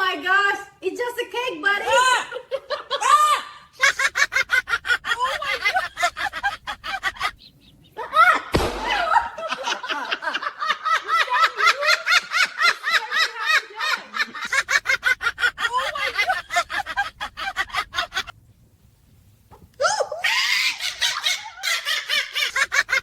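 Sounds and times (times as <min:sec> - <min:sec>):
person laughing high-pitched: 0:02.9 - 0:07.4, 0:15.4 - 0:17.8.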